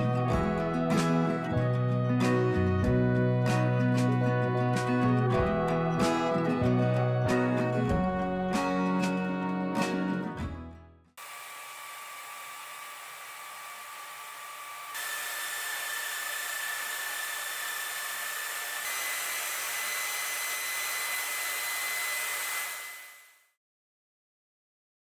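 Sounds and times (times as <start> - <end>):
hair dryer blowing: 11.2 - 23.4.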